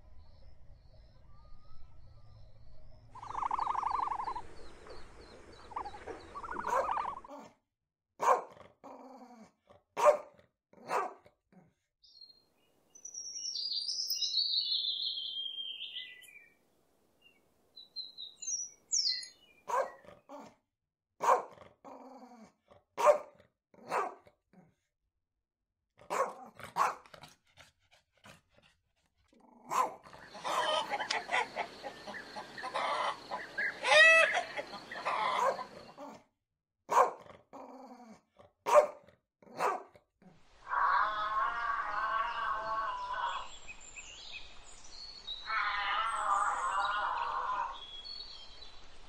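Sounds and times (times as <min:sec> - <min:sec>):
kookaburra chattering call: 0:03.2 - 0:04.4, 0:05.7 - 0:07.3, 0:30.2 - 0:35.8, 0:40.7 - 0:43.5, 0:45.4 - 0:47.9
dog barking: 0:06.1 - 0:07.5, 0:08.2 - 0:08.6, 0:10.0 - 0:11.3, 0:19.7 - 0:20.5, 0:21.2 - 0:21.6, 0:23.0 - 0:24.2, 0:26.0 - 0:27.1, 0:29.6 - 0:31.7, 0:34.2 - 0:36.2, 0:36.9 - 0:37.3, 0:38.6 - 0:39.9.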